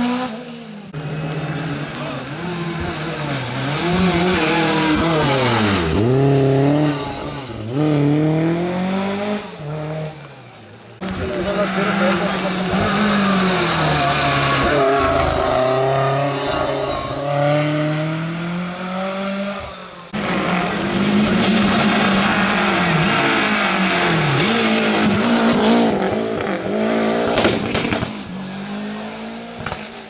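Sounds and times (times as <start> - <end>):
rally car engines revving: 0.0 - 30.0
sharp cracks: 27.3 - 28.4.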